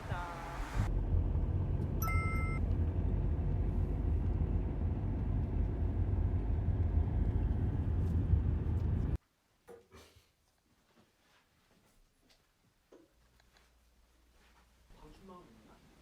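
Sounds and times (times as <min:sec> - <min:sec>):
car driving interior rumble: 0:00.0 - 0:09.2.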